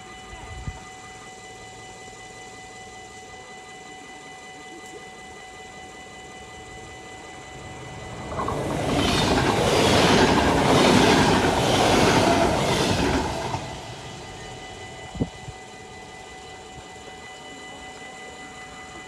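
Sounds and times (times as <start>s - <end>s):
electric train passing: 5.2s - 19.0s
crossing signal ringing: 6.0s - 17.2s
wheels clacking over rail joints: 7.6s - 15.0s.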